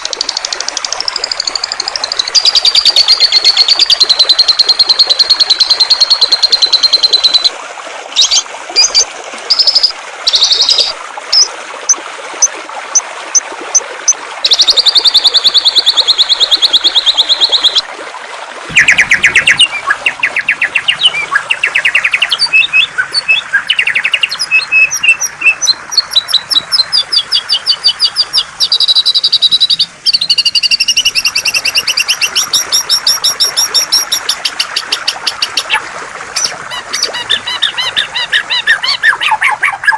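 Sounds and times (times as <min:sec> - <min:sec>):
flowing water: 0:00.0 - 0:39.9
songbird trilling and chirping: 0:18.7 - 0:32.6.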